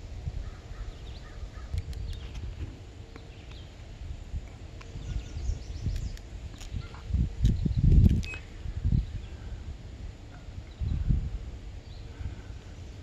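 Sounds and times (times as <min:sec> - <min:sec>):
wind rumble on microphone: 0:00.0 - 0:13.0
small birds chirping: 0:00.5 - 0:02.5, 0:03.1 - 0:03.8, 0:04.5 - 0:09.6, 0:10.3 - 0:11.2, 0:11.8 - 0:13.0.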